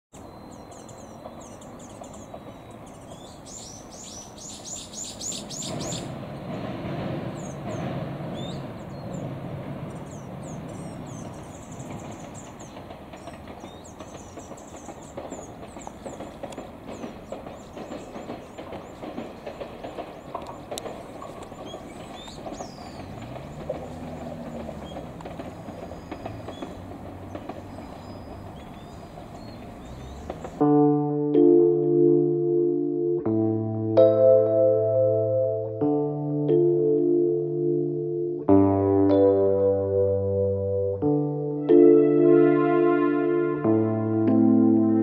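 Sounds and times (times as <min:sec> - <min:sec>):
small birds chirping: 0:00.1 - 0:06.2, 0:07.2 - 0:30.6
distant railcar rumbling across bridge: 0:00.2 - 0:30.7.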